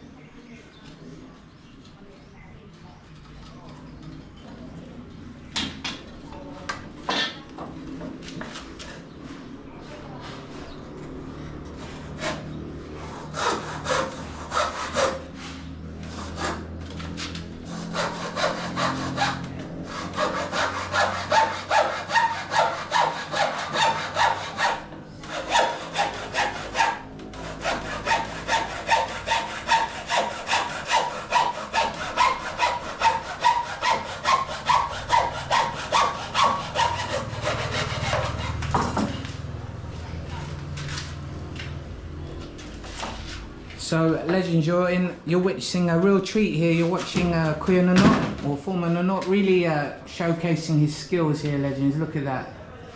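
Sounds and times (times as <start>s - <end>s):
hand saw cutting wood: 11.7s - 39.2s.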